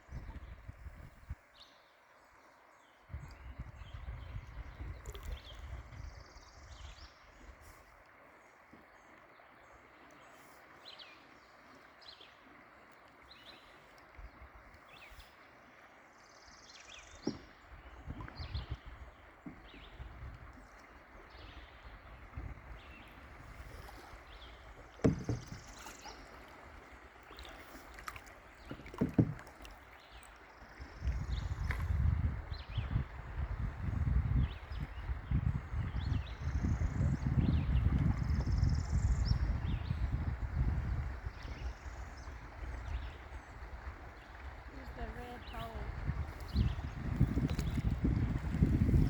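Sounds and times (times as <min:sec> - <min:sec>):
river water running: 0:00.0 - 0:49.0
low knocks: 0:25.0 - 0:25.7.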